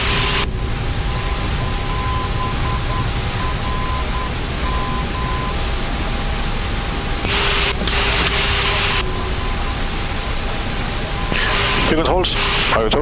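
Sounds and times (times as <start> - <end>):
faint steady tone: 0.0 - 12.0
flight deck hiss: 0.0 - 13.0
faint beeping tone: 1.0 - 5.7, 7.2 - 12.0.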